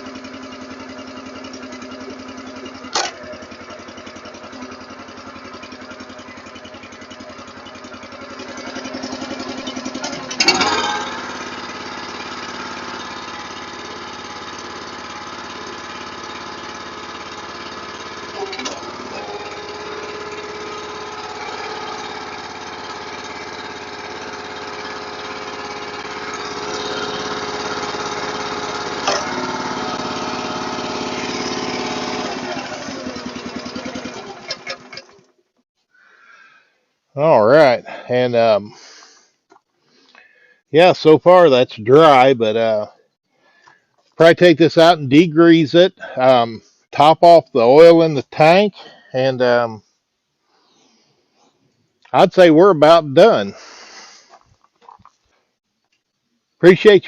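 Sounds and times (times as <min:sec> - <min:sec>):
small gas engine running: 0:00.0 - 0:55.2
sharp mechanical clunks: 0:02.8 - 0:03.4.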